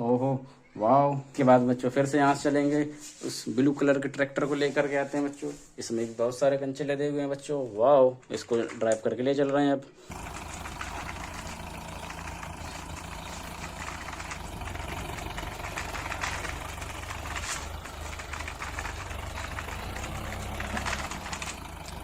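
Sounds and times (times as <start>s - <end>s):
tractor engine rumbling: 10.0s - 22.0s.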